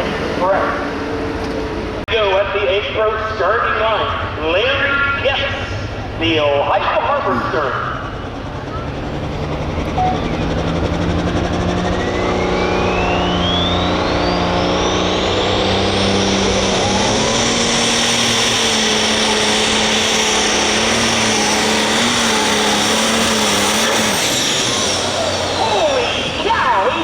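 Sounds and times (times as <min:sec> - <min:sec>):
tractor diesel engine at full power: 0:00.0 - 0:27.0
turbo whine rising: 0:07.1 - 0:27.0.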